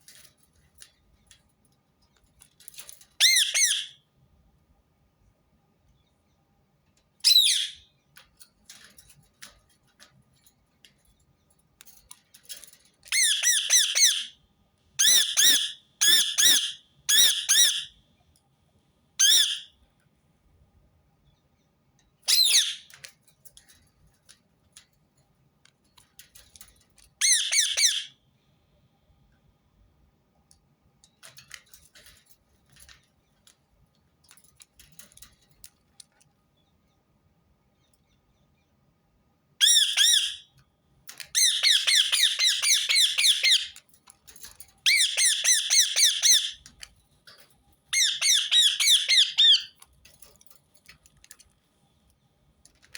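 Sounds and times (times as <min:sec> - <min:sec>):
faint bird chatter: 0:02.6 - 0:04.0, 0:07.2 - 0:10.1, 0:12.0 - 0:14.4, 0:15.0 - 0:18.0, 0:19.2 - 0:19.8, 0:21.3 - 0:24.2, 0:26.1 - 0:28.5, 0:39.6 - 0:52.9
parakeet screeching: 0:03.2 - 0:03.9, 0:07.3 - 0:07.8, 0:13.1 - 0:14.3, 0:15.0 - 0:17.9, 0:19.2 - 0:19.6, 0:22.3 - 0:22.9, 0:27.2 - 0:28.1, 0:39.6 - 0:40.4, 0:41.4 - 0:43.8, 0:44.9 - 0:46.6, 0:48.0 - 0:49.7.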